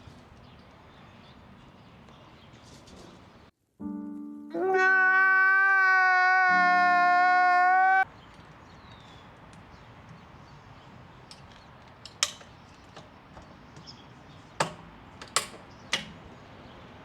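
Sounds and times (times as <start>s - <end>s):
handling of tools and parts: 8.3s - 16.4s.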